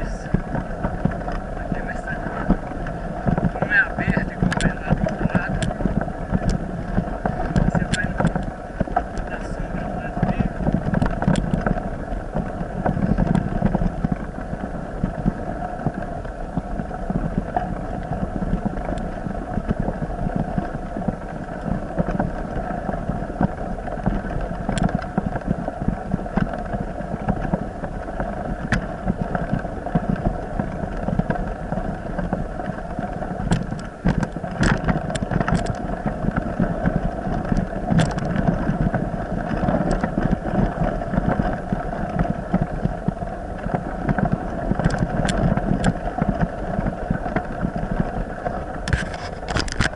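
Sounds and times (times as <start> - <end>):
boat engine running: 0.0 - 49.9
water and wind rushing: 0.0 - 49.9.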